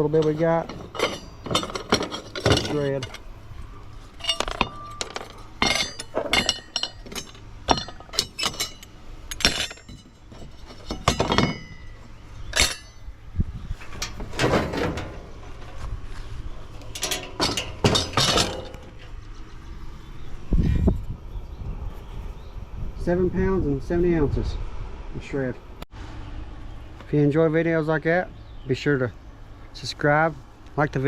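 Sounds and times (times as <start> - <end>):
scrap steel clinking: 0.0 - 19.2.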